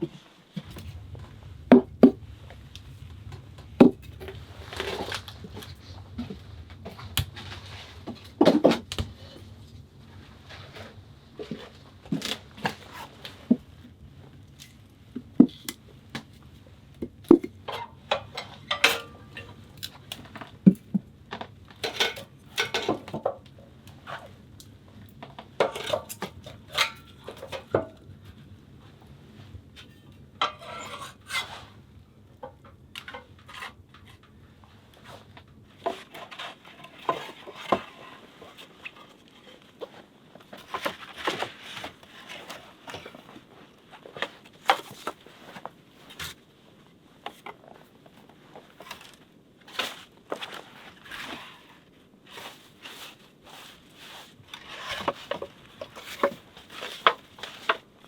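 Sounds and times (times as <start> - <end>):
clinking dishes and utensils: 17.7 - 19.6, 21.8 - 23.2.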